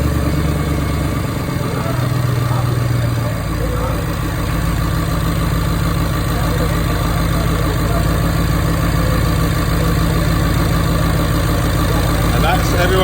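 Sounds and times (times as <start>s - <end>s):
car engine idling: 0.0s - 13.0s
exhaust leaking: 0.0s - 13.0s.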